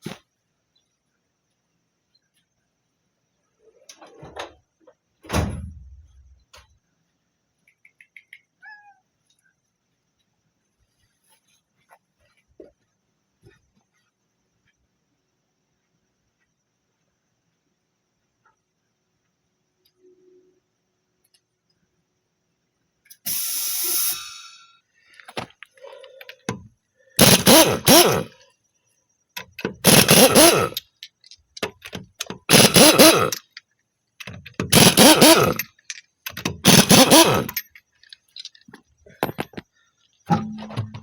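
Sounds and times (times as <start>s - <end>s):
impact wrench bursts: 23.3s - 24.7s, 27.2s - 28.4s, 29.4s - 30.9s, 31.6s - 33.6s, 34.2s - 37.8s
short air hiss: 23.3s - 24.8s.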